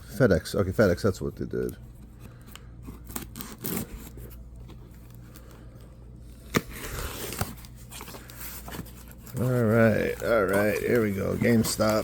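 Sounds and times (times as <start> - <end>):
packaging scraping and tearing: 2.8 - 5.5, 6.3 - 12.0
package rustling: 6.4 - 12.0.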